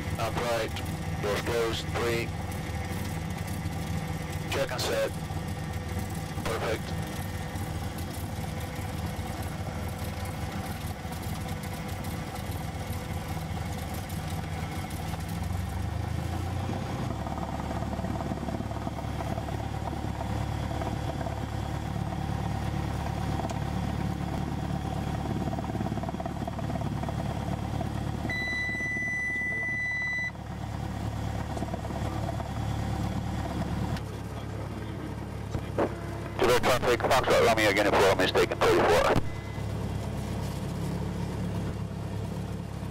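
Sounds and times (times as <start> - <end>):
airplane engine running: 0.0 - 42.9
steady high beep: 28.3 - 30.3.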